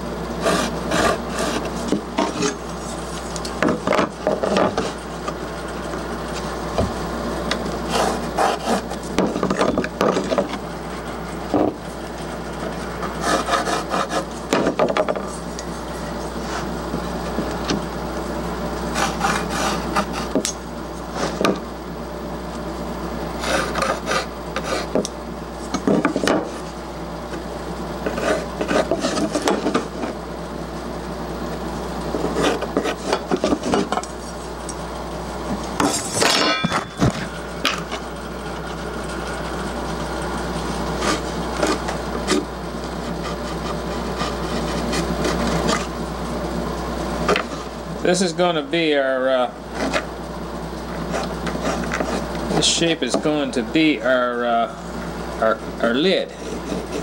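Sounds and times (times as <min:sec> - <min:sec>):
steady low hum: 0:00.0 - 0:57.0
pencil scratching on plywood: 0:00.4 - 0:02.5, 0:07.9 - 0:09.0, 0:13.0 - 0:14.4, 0:18.9 - 0:20.4, 0:23.4 - 0:25.1, 0:28.0 - 0:30.1, 0:32.2 - 0:33.9, 0:41.0 - 0:42.4, 0:43.0 - 0:45.9, 0:51.1 - 0:52.7, 0:56.3 - 0:57.0.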